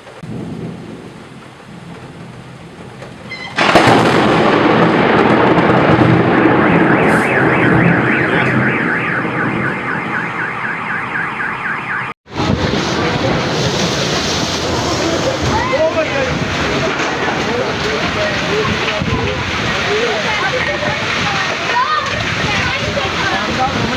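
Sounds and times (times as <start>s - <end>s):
loud lightning crack: 0.0s - 23.9s
thunder rumble and rushing: 0.0s - 23.9s
car alarm chirping: 6.1s - 12.2s.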